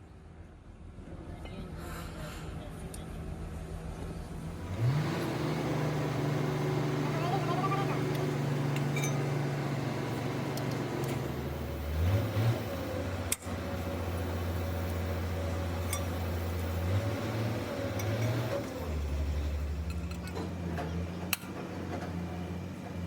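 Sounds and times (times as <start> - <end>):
engine idling: 3.9 - 23.0.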